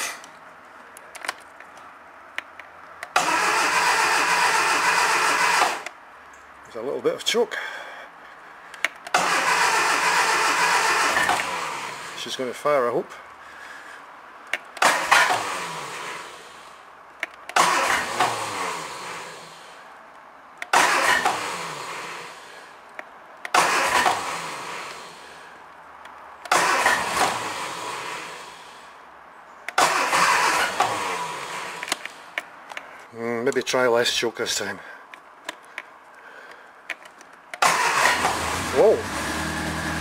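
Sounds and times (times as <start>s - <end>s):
car engine cranking on starter: 3.1s - 6.0s, 9.1s - 12.2s, 14.7s - 16.7s, 17.5s - 19.7s, 20.7s - 22.5s, 23.5s - 25.4s, 26.5s - 28.8s, 29.7s - 32.2s, 37.6s - 40.0s.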